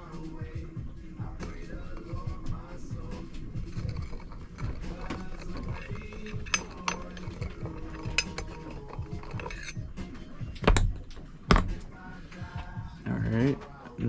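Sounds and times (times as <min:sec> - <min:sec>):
metal coffee pot clinking: 0:01.4 - 0:11.9
heavy knocks: 0:10.6 - 0:11.9.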